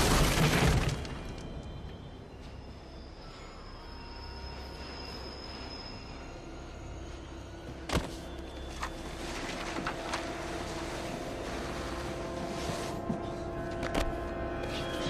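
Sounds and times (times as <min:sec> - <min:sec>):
low subway rumble: 0:01.4 - 0:15.0
steady humming tone: 0:01.7 - 0:15.0.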